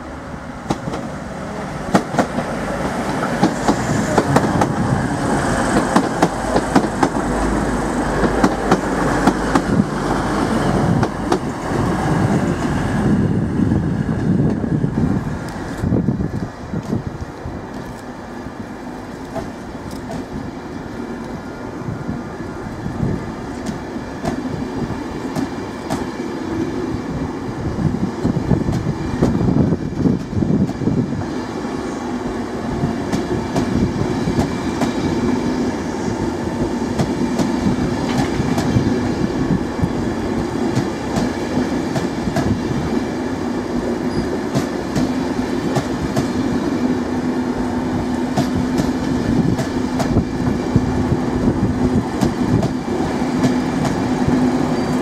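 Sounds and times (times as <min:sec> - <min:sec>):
train wheels clicking over rail joints: 0:23.5 - 0:24.5, 0:36.6 - 0:39.1, 0:39.8 - 0:42.7, 0:44.1 - 0:46.6, 0:48.1 - 0:51.0, 0:51.8 - 0:55.0.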